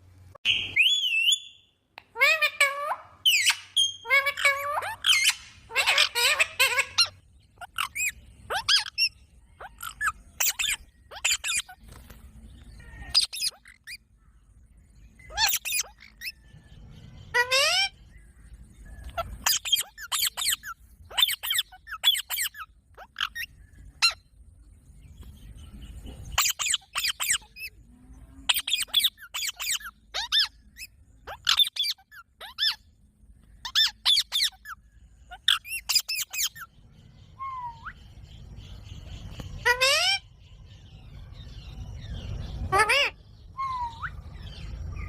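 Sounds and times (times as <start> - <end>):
parrot shrill calls: 0.4 - 11.8, 12.8 - 14.0, 15.3 - 16.4, 17.3 - 18.0, 19.0 - 24.2, 26.4 - 27.7, 28.5 - 32.8, 33.6 - 36.7, 37.4 - 38.0, 39.6 - 40.3, 42.6 - 44.2.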